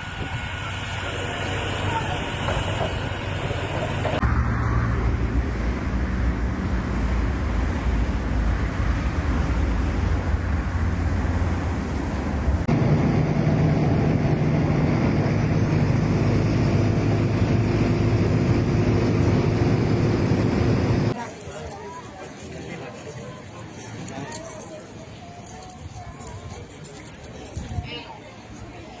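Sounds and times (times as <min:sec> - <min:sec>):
steady engine drone: 0:00.0 - 0:21.2
higher-pitched engine sound: 0:12.7 - 0:21.2.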